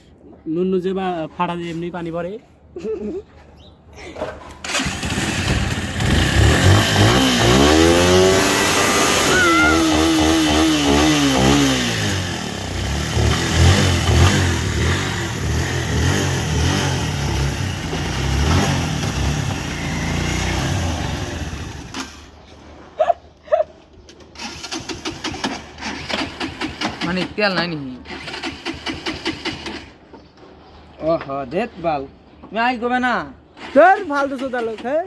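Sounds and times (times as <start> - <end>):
motorcycle engine revving: 4.6 - 22.4, 24.4 - 27.3, 28.0 - 30.0.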